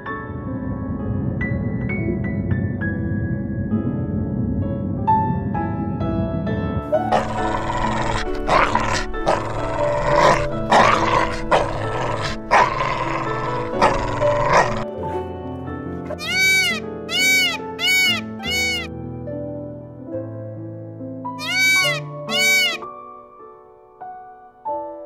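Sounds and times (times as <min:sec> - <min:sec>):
gentle piano music: 0:00.0 - 0:25.0
dog barking: 0:07.0 - 0:14.8, 0:16.1 - 0:18.9.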